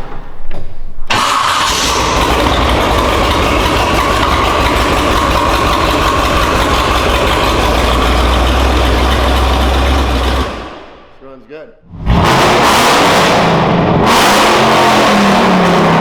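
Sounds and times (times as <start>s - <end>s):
vehicle engine idling: 1.5s - 11.0s.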